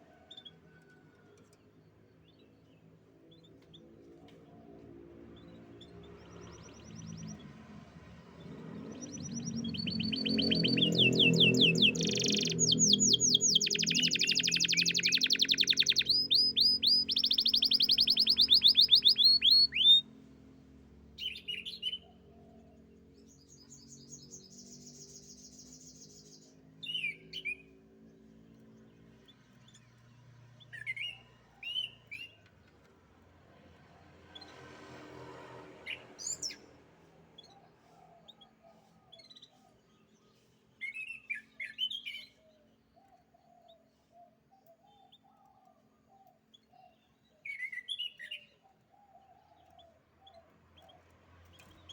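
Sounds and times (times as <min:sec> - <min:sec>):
canary singing trills: 0:08.8 - 0:20.0
short bird chirps: 0:09.3 - 0:20.0.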